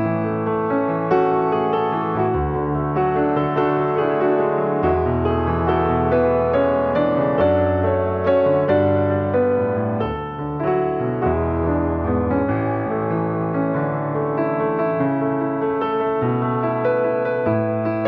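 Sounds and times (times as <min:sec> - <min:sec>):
slow gentle piano music: 0:00.0 - 0:18.0.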